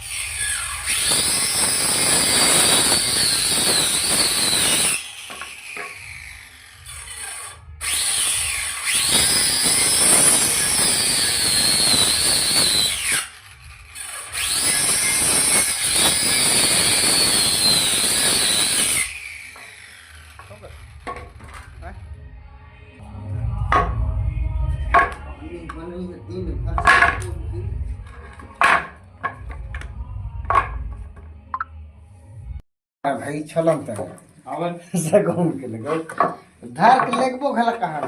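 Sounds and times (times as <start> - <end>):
power tool motor whine: 0.0 - 21.8.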